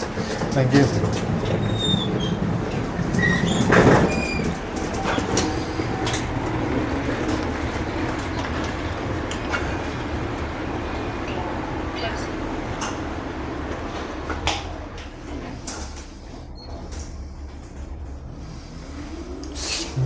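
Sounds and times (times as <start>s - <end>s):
rail clicks: 0.0s - 11.6s
train rumbling on rails: 0.0s - 20.0s
high wheel squeals: 1.6s - 2.4s.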